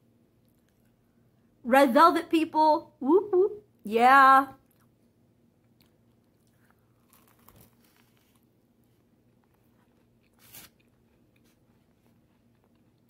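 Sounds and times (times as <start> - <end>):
faint crunching and chewing: 0.4 - 1.4, 4.6 - 13.0.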